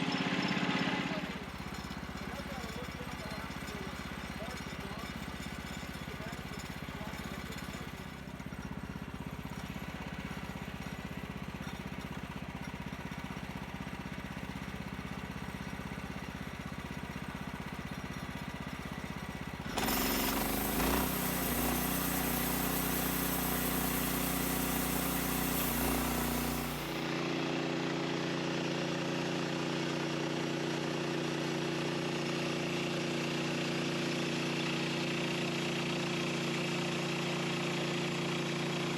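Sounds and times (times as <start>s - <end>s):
sawmill engine running: 0.0s - 31.0s
hiss: 20.5s - 27.0s.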